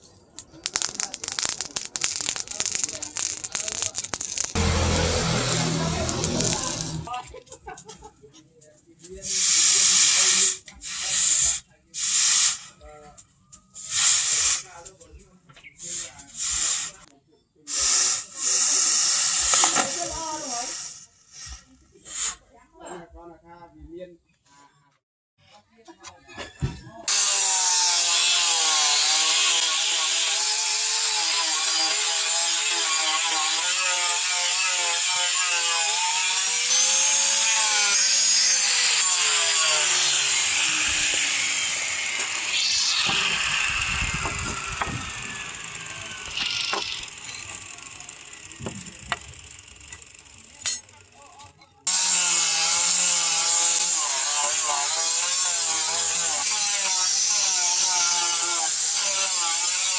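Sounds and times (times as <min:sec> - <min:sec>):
power tool working metal: 0:04.4 - 0:07.2, 0:18.2 - 0:21.6, 0:27.1 - 0:51.0, 0:51.9 - 0:59.9.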